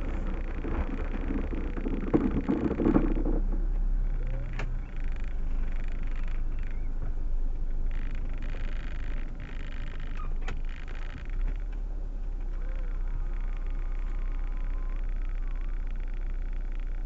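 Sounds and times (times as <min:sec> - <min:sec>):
car cabin rumble: 0:00.0 - 0:17.0
sharp clicks: 0:04.1 - 0:17.0.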